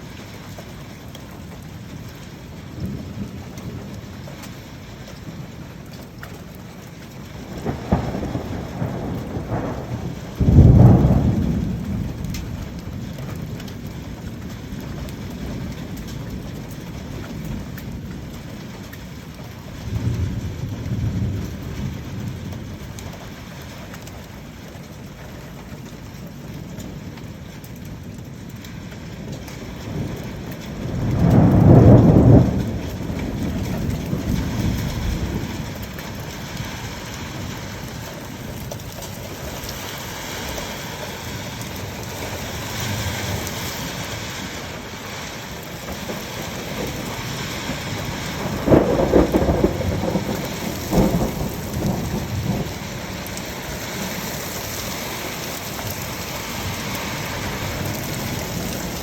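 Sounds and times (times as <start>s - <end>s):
steady rain: 0.0s - 59.0s
thunder rumbling: 7.3s - 14.4s, 29.0s - 59.0s.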